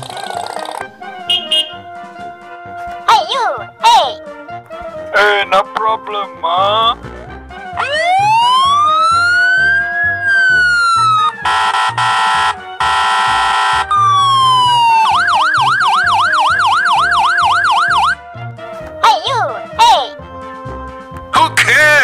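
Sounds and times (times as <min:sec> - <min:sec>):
background music beat: 0:00.0 - 0:22.0
buzzing air horn blasts: 0:01.2 - 0:02.0, 0:11.4 - 0:14.0
police siren wail and yelp: 0:07.7 - 0:18.2.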